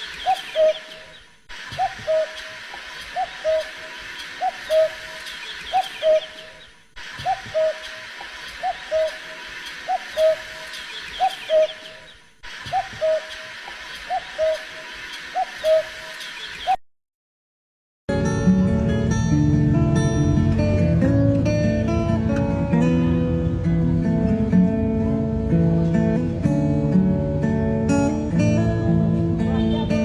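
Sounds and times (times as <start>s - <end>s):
bird two-part call: 0.0s - 16.8s.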